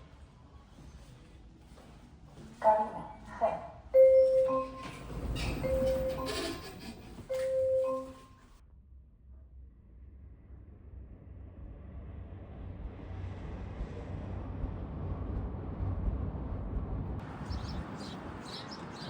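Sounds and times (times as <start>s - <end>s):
moving vehicle rumble: 3.0s - 8.6s, 11.4s - 19.0s
birds chirping: 17.3s - 19.0s.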